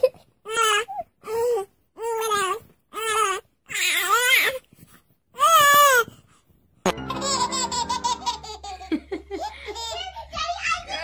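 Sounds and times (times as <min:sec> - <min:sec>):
background music: 0:06.9 - 0:09.5
toddler laughing: 0:06.9 - 0:11.0.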